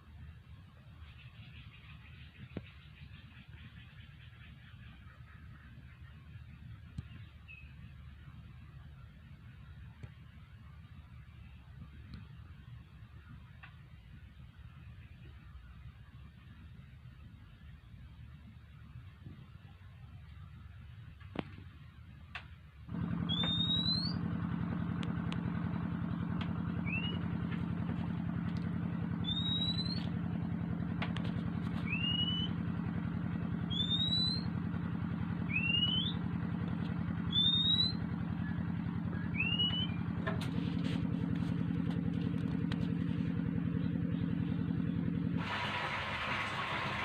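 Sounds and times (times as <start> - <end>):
bird whistled calls: 7.1 - 7.8, 23.2 - 24.3, 26.8 - 27.4, 29.1 - 30.2, 31.8 - 32.6, 33.6 - 34.6, 35.4 - 36.3, 37.2 - 40.1
small engine running: 22.9 - 47.0.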